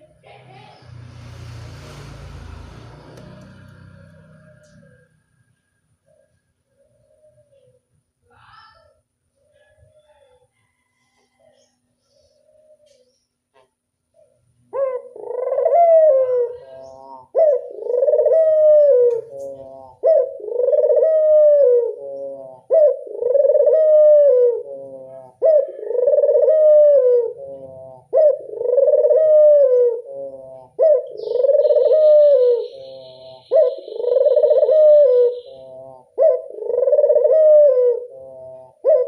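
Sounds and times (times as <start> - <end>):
dove cooing: 6.1 - 7.9, 11.3 - 13.2, 14.2 - 39.0.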